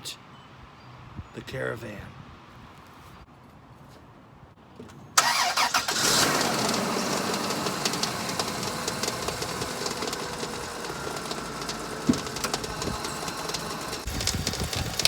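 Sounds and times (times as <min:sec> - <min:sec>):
faint engine whine: 0:05.2 - 0:14.8
car engine starting and idling: 0:05.2 - 0:15.0
light engine ticking: 0:06.4 - 0:15.0.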